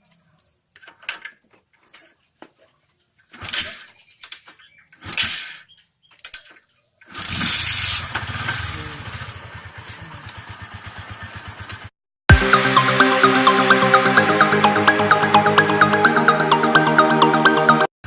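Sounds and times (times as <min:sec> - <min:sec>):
motorcycle engine starting and idling: 0:07.0 - 0:11.9.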